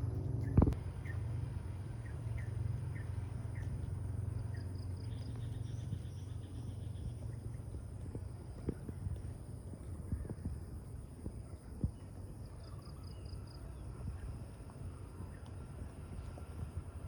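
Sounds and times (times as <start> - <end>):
steady low rumble: 0.0 - 17.0
faint insect hum: 0.2 - 17.0
small bird chirping: 2.0 - 9.0.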